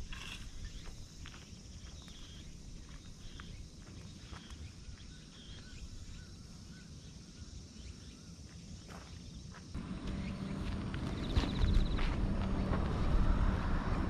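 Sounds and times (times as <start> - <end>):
distant bird chirping: 0.0 - 14.0.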